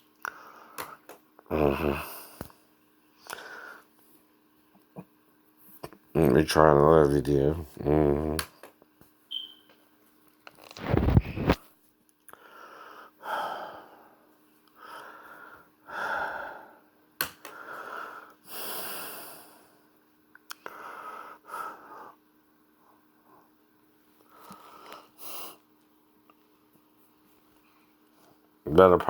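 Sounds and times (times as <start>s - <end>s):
faint steady hum: 0.0s - 29.0s
person breathing heavily: 0.2s - 2.5s, 3.2s - 3.9s, 12.3s - 19.8s, 20.6s - 22.2s.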